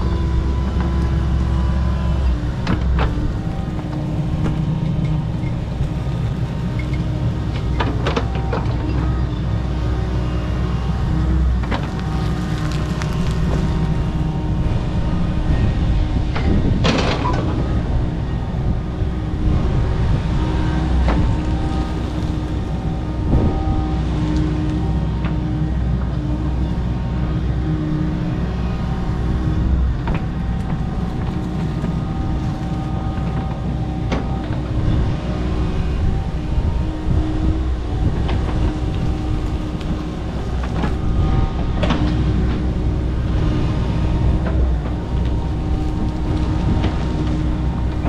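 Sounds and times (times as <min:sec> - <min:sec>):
excavator diesel engine running: 0:00.0 - 0:48.0
brush cracking and knocking: 0:11.4 - 0:14.3, 0:30.1 - 0:34.6, 0:38.2 - 0:42.7.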